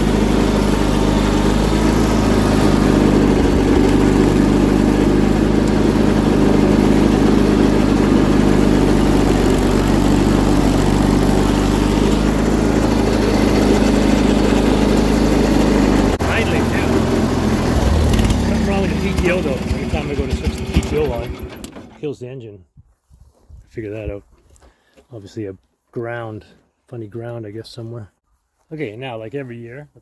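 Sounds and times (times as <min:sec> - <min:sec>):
garden tractor engine droning: 0:00.0 - 0:22.0.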